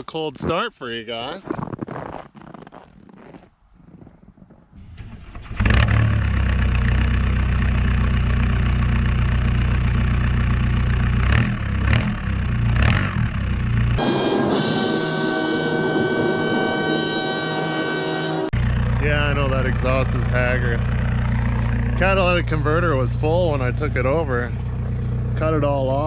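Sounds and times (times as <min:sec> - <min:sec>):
diesel engine starting and idling: 0:04.8 - 0:16.5, 0:18.4 - 0:26.0.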